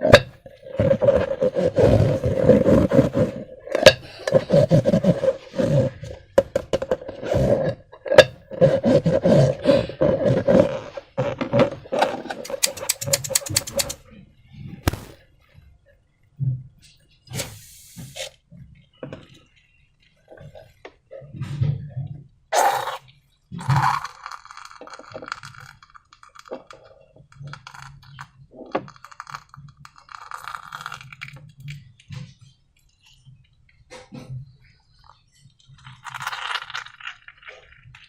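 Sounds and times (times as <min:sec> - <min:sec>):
hands handling materials: 0:10.8 - 0:14.0.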